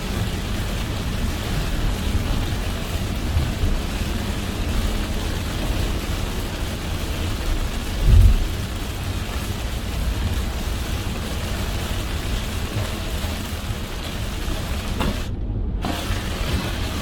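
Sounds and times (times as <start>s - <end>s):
heavy rain on a car: 0.0s - 17.0s
road and engine rumble: 0.0s - 17.0s
low thump: 8.0s - 8.5s.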